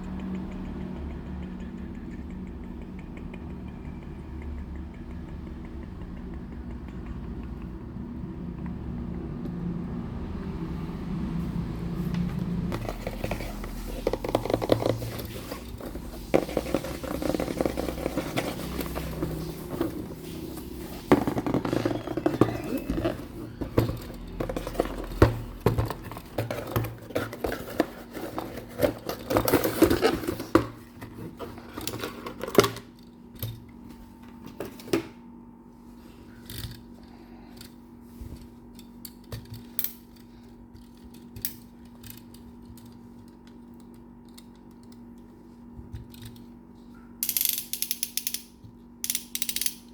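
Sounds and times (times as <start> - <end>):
faint steady hum: 0.0 - 49.9
toy trucks rustling and scraping: 12.7 - 32.8.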